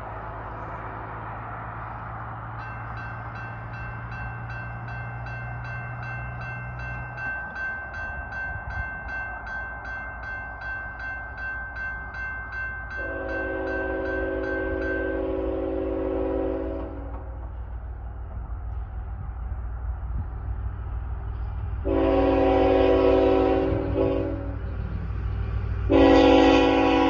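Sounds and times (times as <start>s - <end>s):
crossing warning bell ringing: 2.2s - 17.4s, 21.8s - 27.0s
locomotive air horn: 13.0s - 17.4s, 21.8s - 24.6s, 25.9s - 27.0s.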